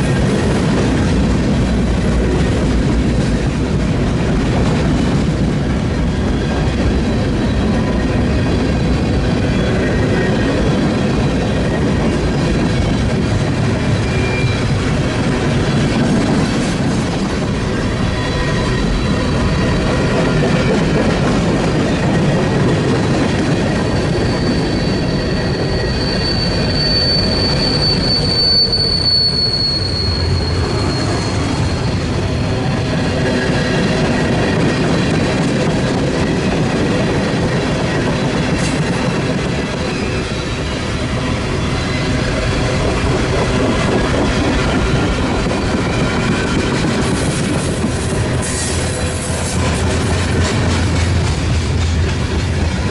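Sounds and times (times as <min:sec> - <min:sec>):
train wheels rumbling on rails: 0:00.0 - 0:52.9
high-pitched wheel squeal: 0:08.8 - 0:15.0, 0:17.6 - 0:21.0, 0:22.1 - 0:35.0.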